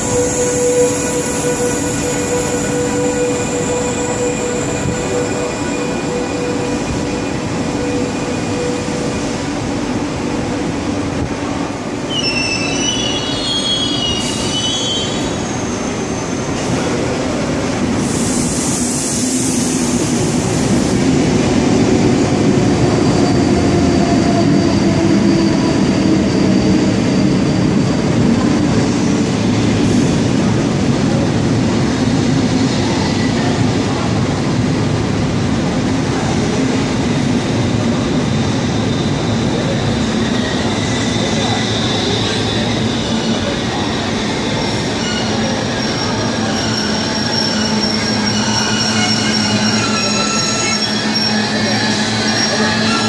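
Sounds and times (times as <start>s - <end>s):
train wheels rumbling on rail: 0.0s - 53.0s
high wheel squeals: 12.1s - 17.0s, 38.4s - 53.0s.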